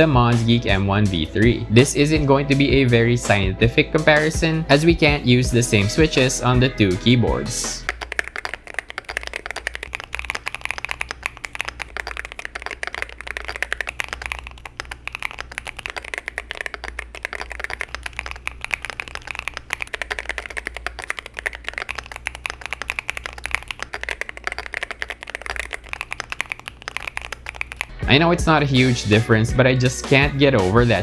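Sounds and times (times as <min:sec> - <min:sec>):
fast typing on keyboard: 0:07.3 - 0:29.4.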